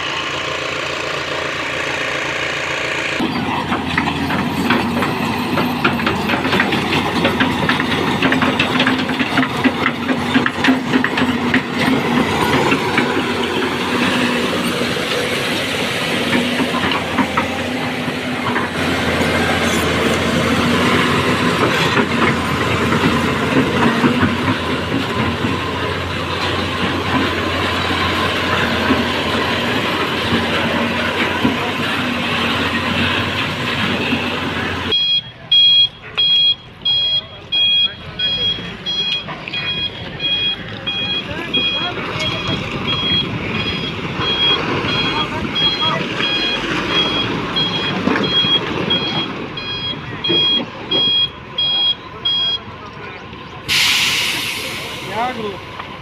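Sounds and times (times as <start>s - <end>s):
diesel machinery engine drone: 0.0s - 56.0s
rapid metallic clanking: 3.1s - 17.6s.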